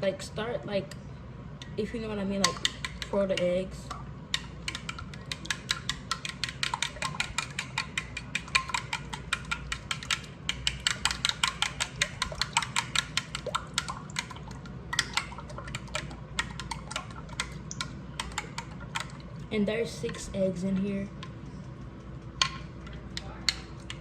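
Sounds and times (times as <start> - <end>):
whisk clicking against bowl: 2.4 - 3.5, 4.3 - 19.3.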